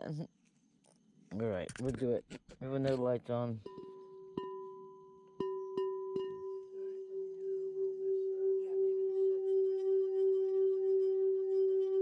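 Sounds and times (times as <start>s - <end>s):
singing bowl tapped: 3.6s - 6.8s
singing bowl ringing tone: 3.6s - 12.0s.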